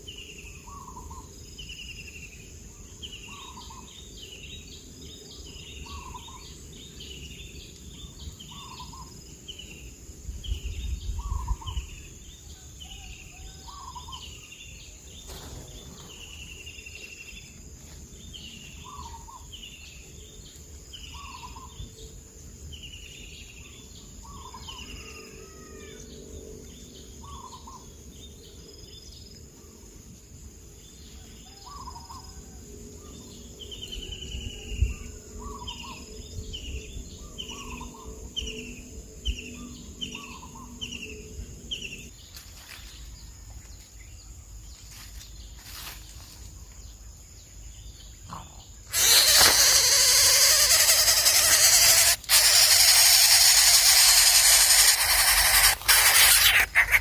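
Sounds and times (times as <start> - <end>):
bird chirping: 0.0 - 9.9, 33.0 - 42.4, 46.6 - 57.0.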